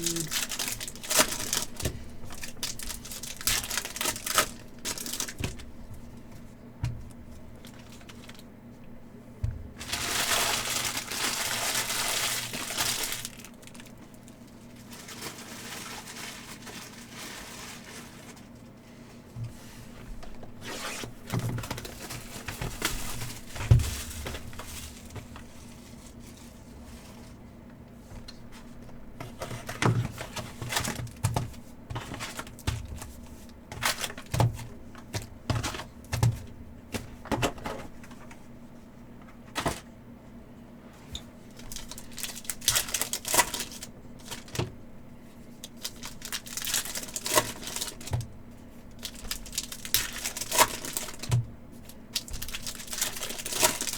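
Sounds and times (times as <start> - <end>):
foil wrappers crinkling and tearing: 0.0 - 5.8, 7.5 - 8.5, 9.8 - 18.7, 20.2 - 26.7, 28.6 - 36.4, 41.4 - 44.7, 45.4 - 53.9.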